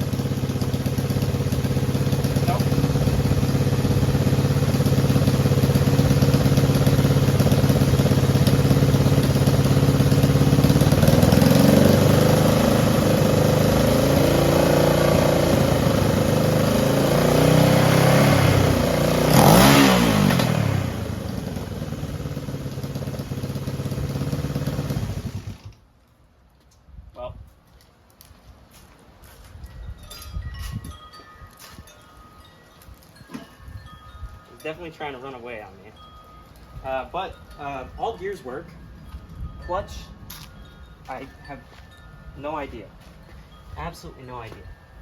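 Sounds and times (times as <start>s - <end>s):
motorcycle engine revving: 0.0s - 25.8s.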